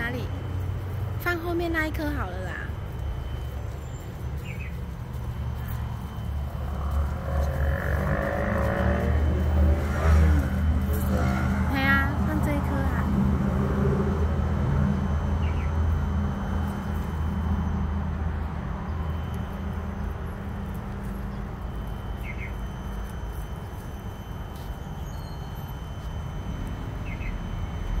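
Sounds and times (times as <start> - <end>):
small bird chirping: 1.7 - 8.0, 21.0 - 22.7, 27.0 - 27.6.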